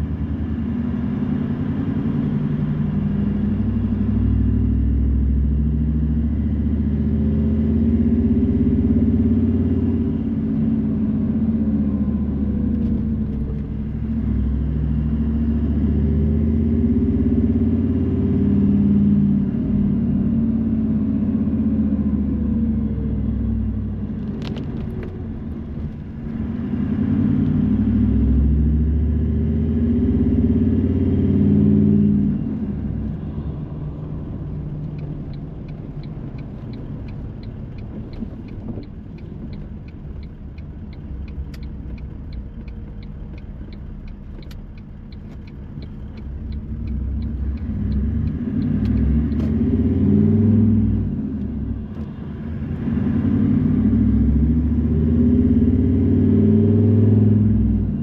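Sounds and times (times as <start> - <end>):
car engine accelerating: 0.0 - 58.0
regular ticking: 34.2 - 49.4.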